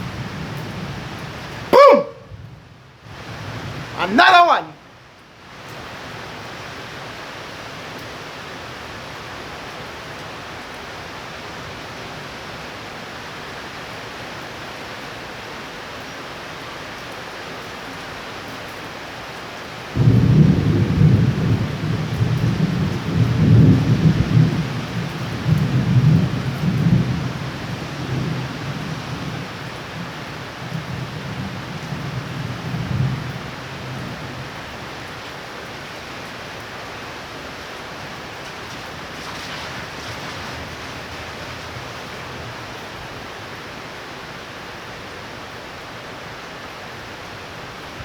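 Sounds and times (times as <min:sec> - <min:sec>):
heavy rain hiss: 0:00.0 - 0:48.0
thunder rumbling: 0:20.0 - 0:34.6, 0:37.9 - 0:43.7.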